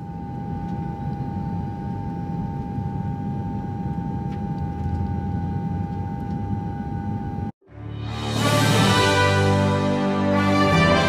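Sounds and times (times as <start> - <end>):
machine hum with constant whine: 0.0 - 7.6.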